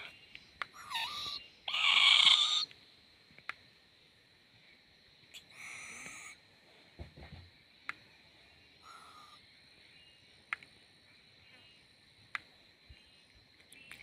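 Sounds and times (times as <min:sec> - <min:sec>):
owlet calling: 0:00.0 - 0:02.7, 0:08.8 - 0:09.4.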